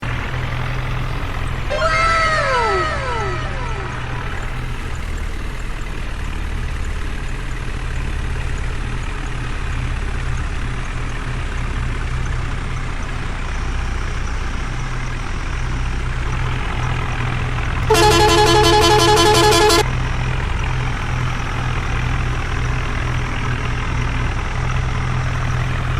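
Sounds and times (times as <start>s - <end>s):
diesel engine idling: 0.0s - 25.9s
vehicle horn: 2.4s - 4.4s, 17.9s - 19.9s.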